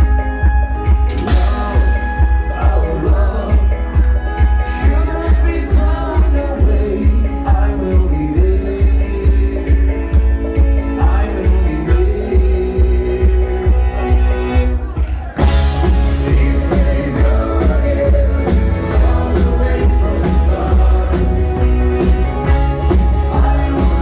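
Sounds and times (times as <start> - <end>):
live band playing rock: 0.0 - 24.0.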